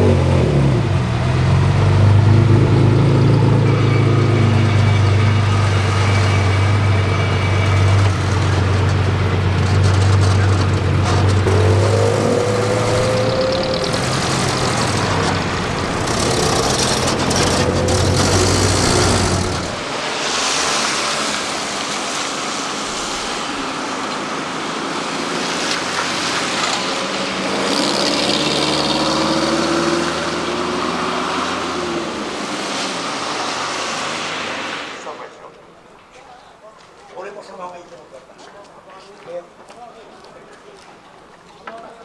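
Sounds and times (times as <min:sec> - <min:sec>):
road noise: 0:00.0 - 0:42.0
truck engine running: 0:01.1 - 0:19.9.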